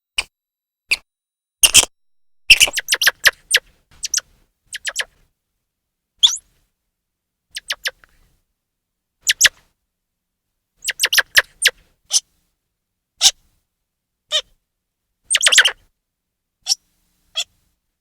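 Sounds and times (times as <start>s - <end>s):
squirrel chirping: 2.5s - 5.1s, 7.6s - 7.9s, 9.2s - 9.5s, 10.8s - 11.7s, 15.3s - 15.8s.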